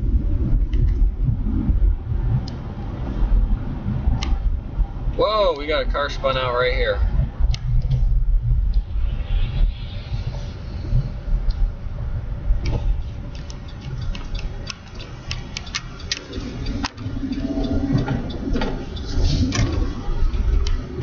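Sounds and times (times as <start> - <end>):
truck driving rumble: 0.0 - 21.0
sharp clicks and ticks: 2.4 - 2.6, 4.1 - 4.4, 5.5 - 8.0, 10.3 - 11.8, 12.4 - 21.0.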